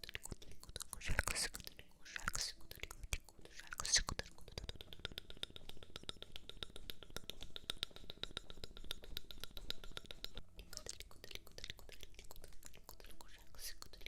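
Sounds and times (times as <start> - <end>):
rapid light tapping: 4.1 - 14.0.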